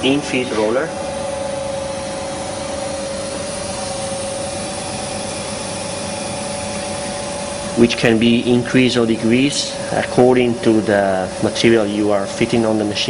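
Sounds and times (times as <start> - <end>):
machine drone with whine: 0.0 - 13.0.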